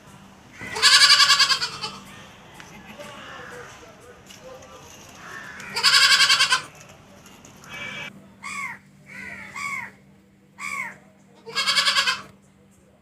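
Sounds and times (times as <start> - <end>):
goat bleating: 0.6 - 3.8, 5.3 - 6.7, 11.4 - 12.3.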